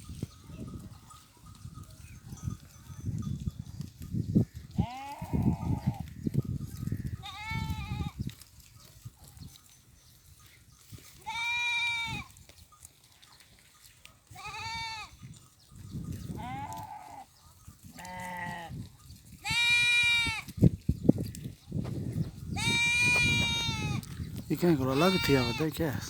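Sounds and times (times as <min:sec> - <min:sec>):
goats bleating: 0:04.8 - 0:06.1, 0:07.2 - 0:08.2, 0:11.2 - 0:12.3, 0:14.3 - 0:15.1, 0:16.4 - 0:17.3, 0:18.0 - 0:18.8, 0:19.4 - 0:20.5, 0:22.6 - 0:26.0.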